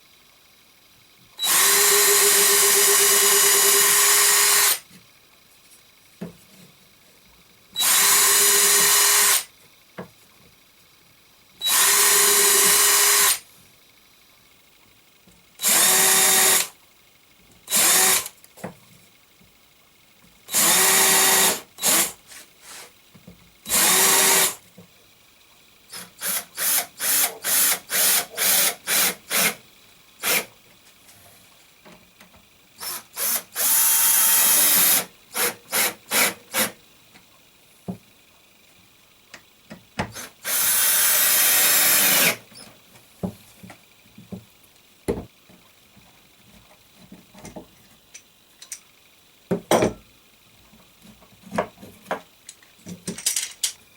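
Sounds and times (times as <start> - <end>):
electric drill whirring: 1.4 - 4.8, 7.8 - 9.5, 11.6 - 13.5, 15.6 - 16.8, 17.7 - 18.3, 20.5 - 22.9, 23.7 - 24.6, 25.9 - 29.6, 30.2 - 30.5, 32.8 - 36.8, 40.1 - 42.7.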